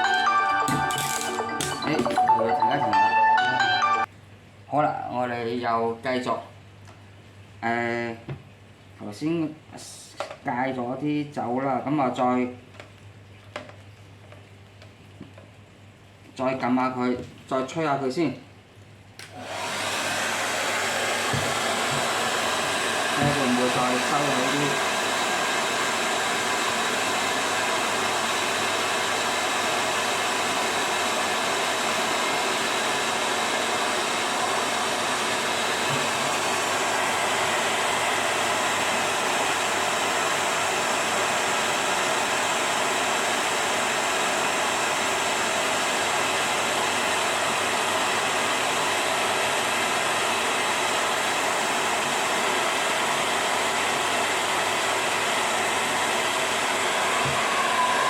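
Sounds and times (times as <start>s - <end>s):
hair dryer running: 0.0s - 4.1s, 19.2s - 58.0s.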